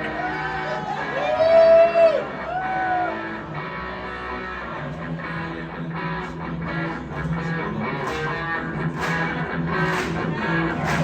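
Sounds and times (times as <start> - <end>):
bass guitar: 0.0 - 11.0
electric guitar riff: 2.2 - 11.0.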